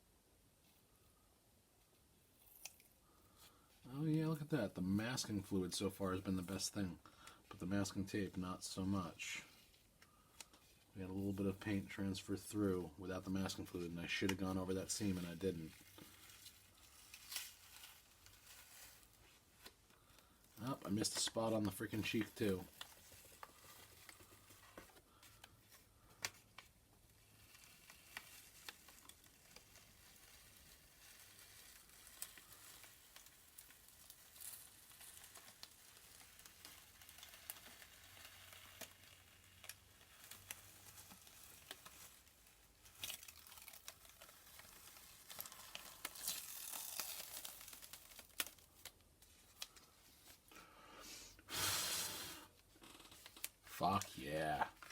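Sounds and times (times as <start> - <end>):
tape peeling off canvas: 14.4 - 19.9, 21.0 - 50.5, 51.4 - 54.9.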